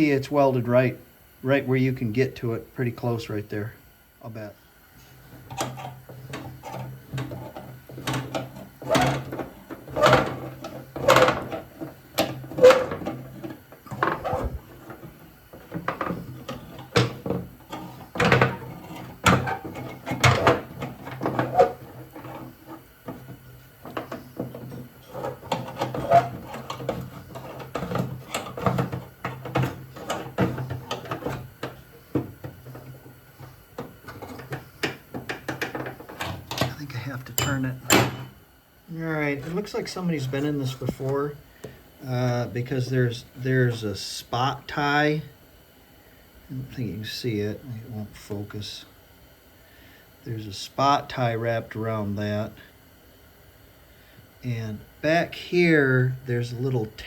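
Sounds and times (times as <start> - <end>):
steady low hum: 0.0 - 57.0
knocks and rattles on metal parts: 5.4 - 33.1, 33.8 - 38.4.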